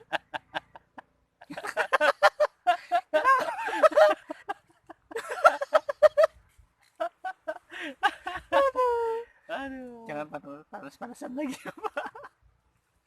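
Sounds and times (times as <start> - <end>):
man laughing: 0.0 - 6.3, 7.0 - 9.2.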